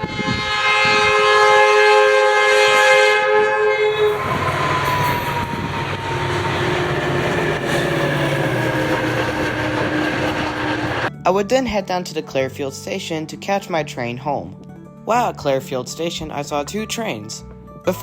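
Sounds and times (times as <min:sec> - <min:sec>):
train air horn chord: 0:00.0 - 0:11.1
train rumbling and rail clatter: 0:02.7 - 0:11.1.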